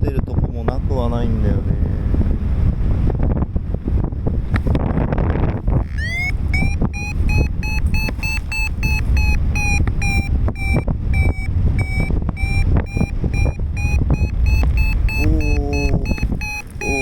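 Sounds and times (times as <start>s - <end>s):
wind noise on microphone: 0.0s - 17.0s
variometer beeping: 5.8s - 17.0s.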